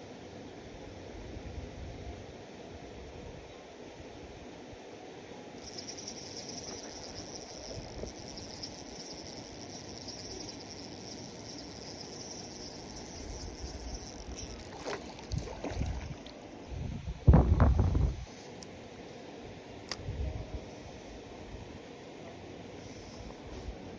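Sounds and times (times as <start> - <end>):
fishing reel whirring: 5.6 - 16.6.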